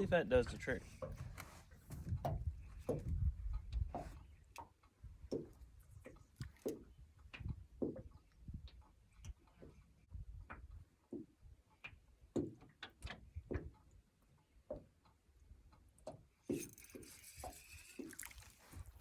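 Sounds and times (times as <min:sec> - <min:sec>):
fishing reel clicking: 0:16.5 - 0:18.8.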